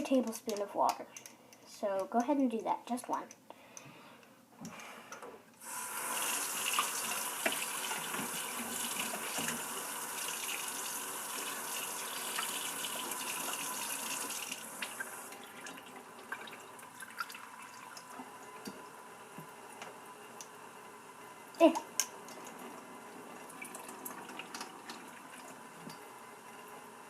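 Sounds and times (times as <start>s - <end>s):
water running from a tap: 5.6s - 18.5s, 22.4s - 26.1s.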